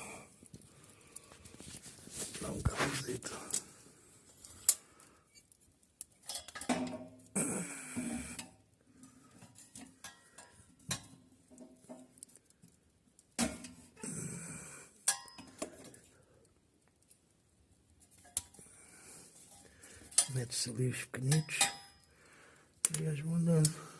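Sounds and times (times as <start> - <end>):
sticks and metal clinking: 21.2 - 22.0.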